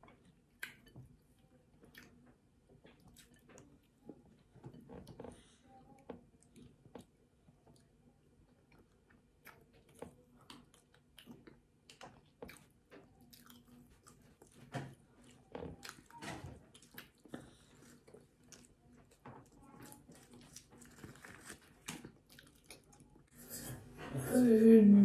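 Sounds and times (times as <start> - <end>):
person chewing: 8.6 - 23.8.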